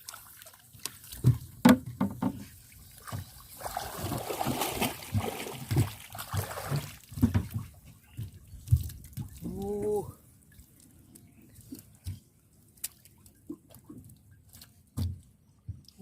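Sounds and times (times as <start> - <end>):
water splashing and trickling: 0.0 - 16.0
knocks against boat: 1.2 - 2.5, 6.7 - 8.8.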